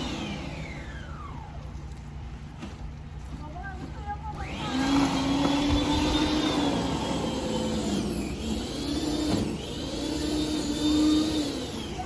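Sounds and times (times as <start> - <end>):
engine revving: 4.4 - 12.0.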